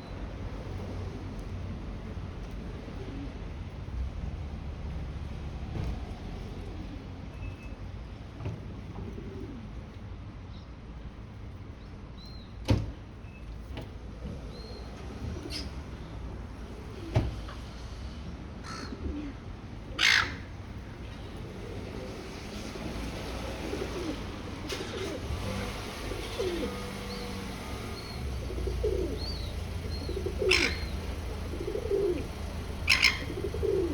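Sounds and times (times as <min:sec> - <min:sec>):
outdoor background noise: 0:00.0 - 0:33.9
gull harsh call: 0:20.0 - 0:20.5, 0:30.3 - 0:31.0, 0:32.8 - 0:33.9.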